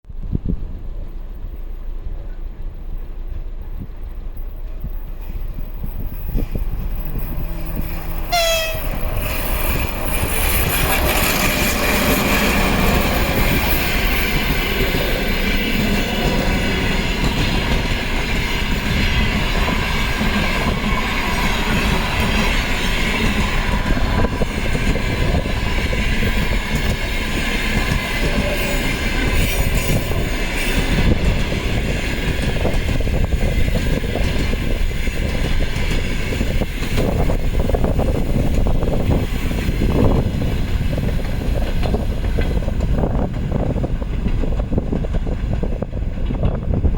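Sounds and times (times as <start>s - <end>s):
train wheels rumbling on rails: 0.0s - 46.9s
locomotive horn blast: 7.5s - 9.0s.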